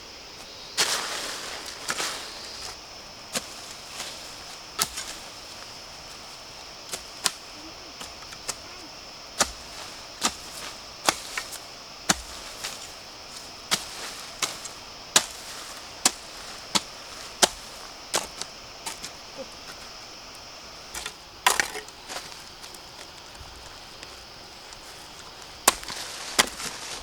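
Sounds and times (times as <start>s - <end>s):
high-pitched insect drone: 0.0s - 24.6s
blade chopping bamboo: 4.8s - 5.2s, 6.8s - 8.7s, 9.3s - 19.1s, 21.0s - 21.9s, 25.7s - 27.0s.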